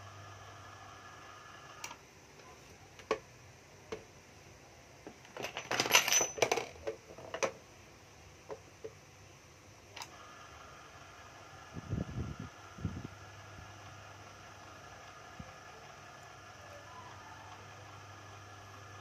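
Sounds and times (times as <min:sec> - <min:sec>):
faint steady hum: 0:00.0 - 0:19.0
plastic and metal clattering: 0:05.1 - 0:07.6.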